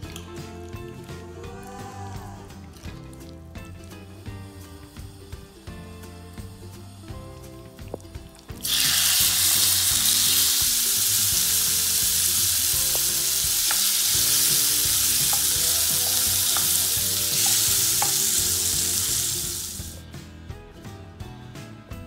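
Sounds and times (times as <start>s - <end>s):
chicken sizzling in hot oil: 3.9s - 20.0s
spatula tapping on pan: 12.9s - 18.4s.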